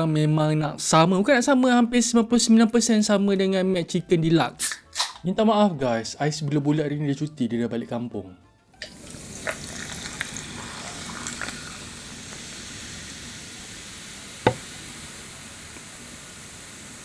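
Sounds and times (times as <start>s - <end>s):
food frying sizzle: 8.8s - 17.0s.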